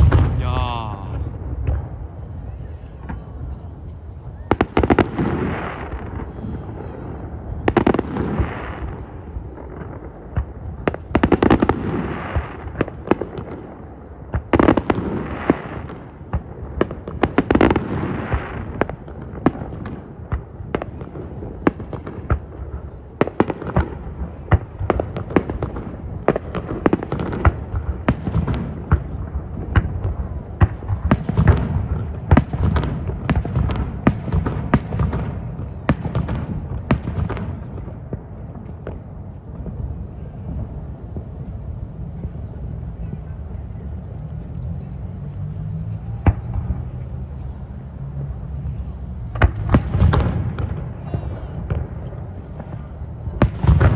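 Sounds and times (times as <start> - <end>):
firework shells booming: 0.0 - 2.0
rapid crackling firework bangs: 0.0 - 2.0, 4.5 - 41.6, 49.2 - 53.9.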